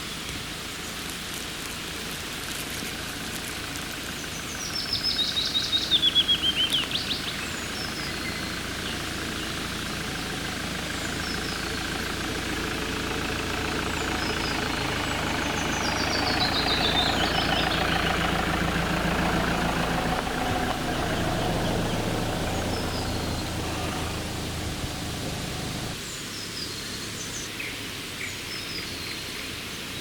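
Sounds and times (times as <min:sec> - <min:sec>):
engine running low hum: 0:00.0 - 0:29.9.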